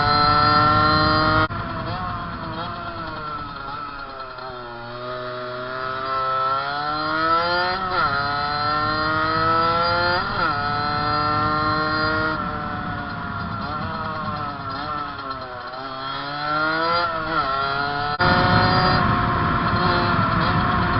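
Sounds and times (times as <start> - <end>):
motorcycle engine at full throttle: 0.0 - 20.9.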